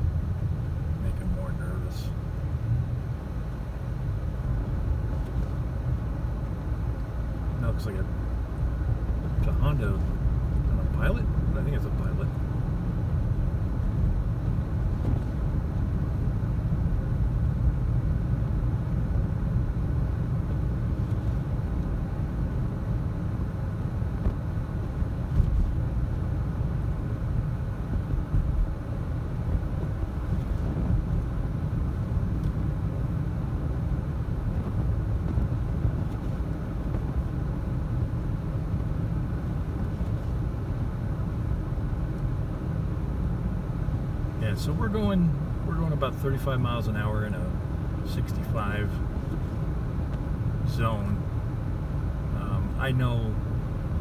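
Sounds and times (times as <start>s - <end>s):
tyre noise inside a car: 12.4s - 46.2s.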